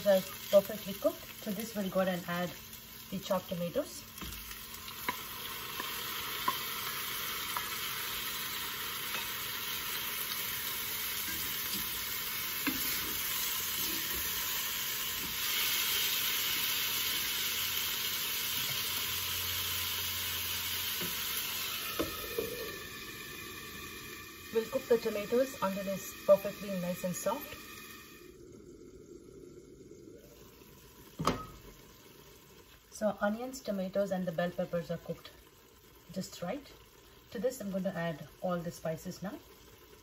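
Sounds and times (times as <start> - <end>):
tomatoes sizzling in hot oil: 0.0 - 40.0
glass lid placed on pan: 31.2 - 31.6.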